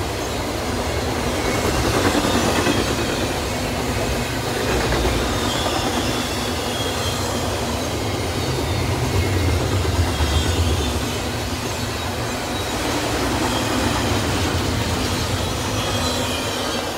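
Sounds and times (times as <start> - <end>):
steel wheels rumbling on rail: 0.0 - 16.9
faint high wheel squeal: 5.2 - 16.9.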